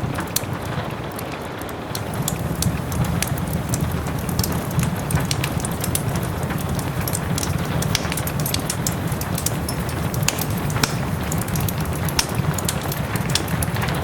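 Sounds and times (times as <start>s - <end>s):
steady rain hiss: 0.0s - 14.0s
wood fire crackling: 0.0s - 14.0s.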